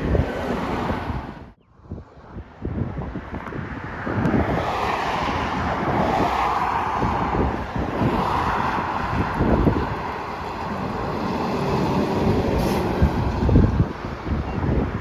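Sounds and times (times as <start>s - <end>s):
wind buffeting microphone: 0.0s - 15.0s
heavy truck driving by: 6.8s - 14.2s.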